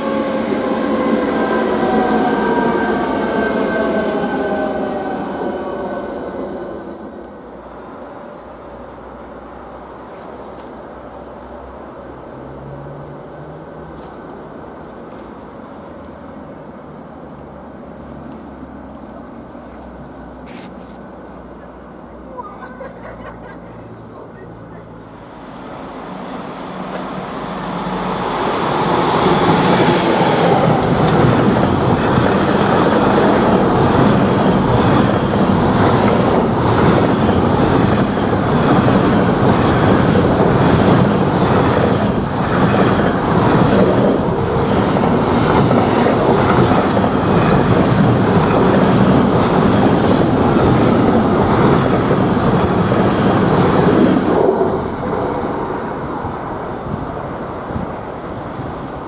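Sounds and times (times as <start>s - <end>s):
train wheels clattering over rails: 26.7s - 55.6s.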